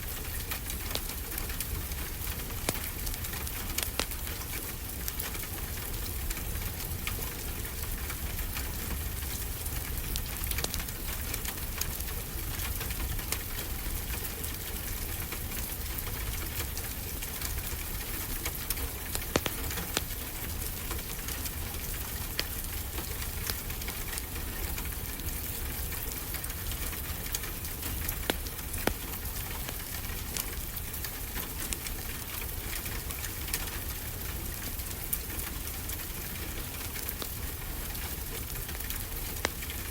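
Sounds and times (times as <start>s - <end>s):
fireplace crackling: 16.6s - 24.4s, 25.0s - 39.9s.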